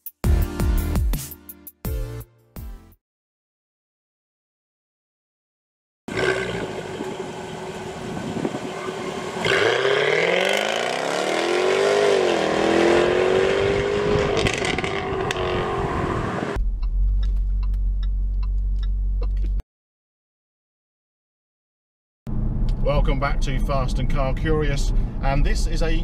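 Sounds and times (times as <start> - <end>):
car engine revving: 6.1 - 18.8
exhaust crackles: 6.1 - 19.5.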